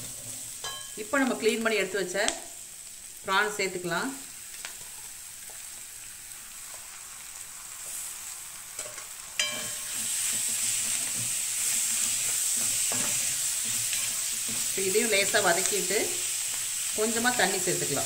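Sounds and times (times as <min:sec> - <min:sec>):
prawns sizzling in hot oil: 0:00.0 - 0:18.0.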